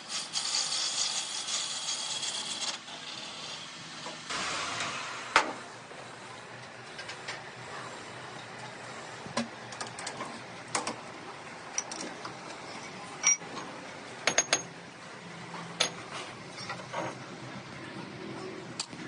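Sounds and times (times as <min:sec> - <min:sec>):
metallic clinks and knocks: 0:12.7 - 0:13.6, 0:14.2 - 0:14.7.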